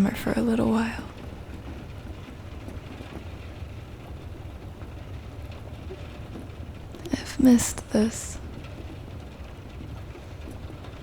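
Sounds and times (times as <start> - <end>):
brown noise rumble: 0.0 - 11.0
soft rain hiss: 0.0 - 11.0.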